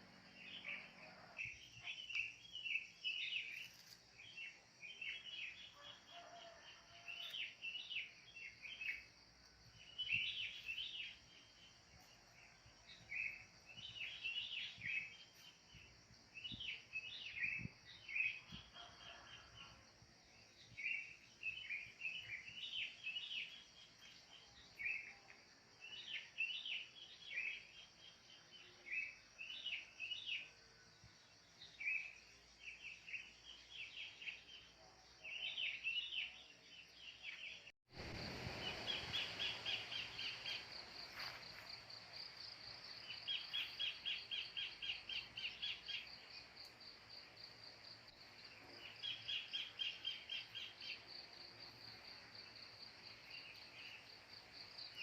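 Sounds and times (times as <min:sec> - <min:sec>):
birds chirping: 0:35.3 - 0:41.4
high insect drone: 0:38.0 - 0:55.0.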